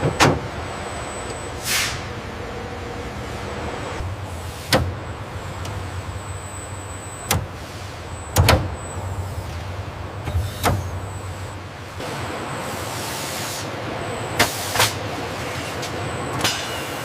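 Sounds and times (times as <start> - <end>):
low factory hum: 0.0 - 17.0.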